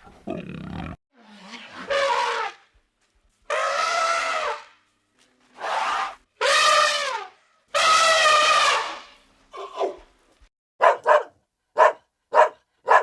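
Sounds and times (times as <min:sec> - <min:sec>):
animal calling: 0:10.8 - 0:13.0.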